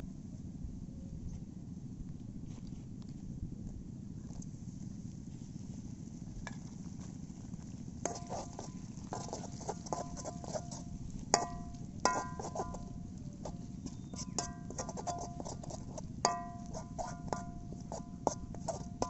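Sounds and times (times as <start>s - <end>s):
metal spoon knocking on pot: 11.4s - 12.9s, 14.2s - 15.5s, 16.3s - 19.0s.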